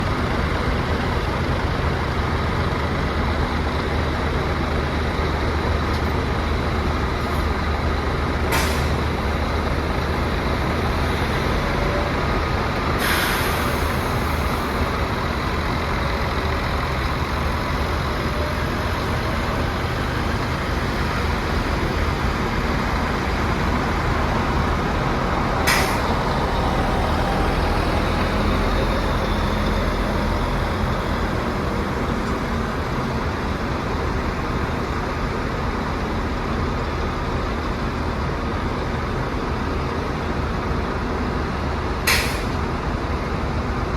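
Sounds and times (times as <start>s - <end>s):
diesel engine running: 0.0s - 43.9s
air brake hisses: 8.5s - 9.0s, 13.0s - 14.2s, 25.7s - 26.1s, 42.0s - 42.6s.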